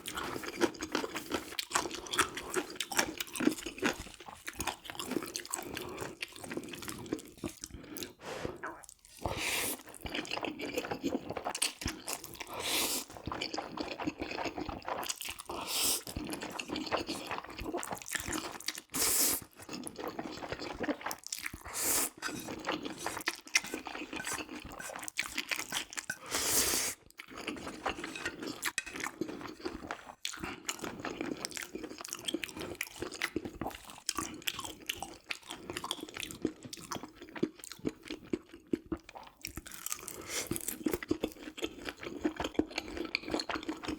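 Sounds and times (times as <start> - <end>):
wet chewing with mouth clicks: 0.0 - 43.9
slurping noodles: 7.4 - 13.6, 15.5 - 17.1, 18.4 - 19.6, 21.6 - 27.0.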